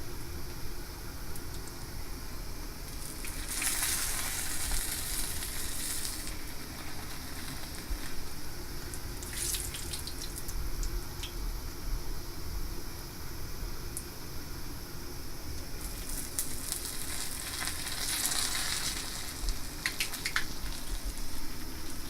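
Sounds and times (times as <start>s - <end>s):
kitchen tap running: 2.9s - 8.2s, 8.8s - 10.6s, 15.8s - 22.0s.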